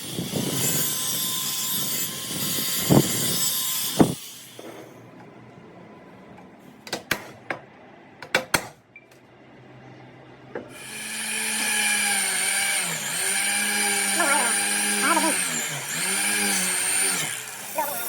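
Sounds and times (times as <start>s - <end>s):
power tool whining: 0.0s - 4.9s, 10.7s - 18.0s.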